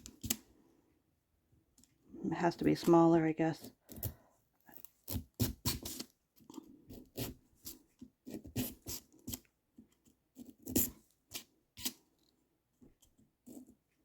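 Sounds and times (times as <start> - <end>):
knife cutting pumpkin: 3.6 - 9.4.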